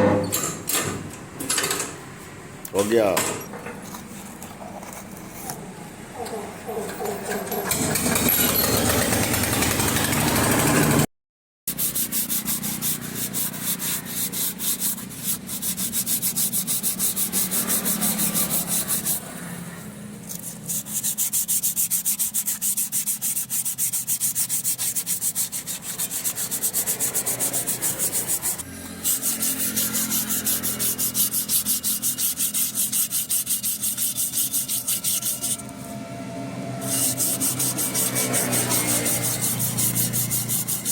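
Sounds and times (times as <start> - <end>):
hand abrasive scraping a part: 3.8 - 5.7, 11.7 - 36.0, 36.8 - 40.9.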